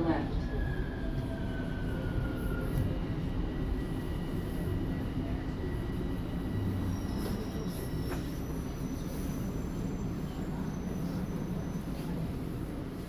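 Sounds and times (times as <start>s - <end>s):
subway train rumble: 0.0s - 13.0s
wheel and brake squeals: 6.8s - 12.2s.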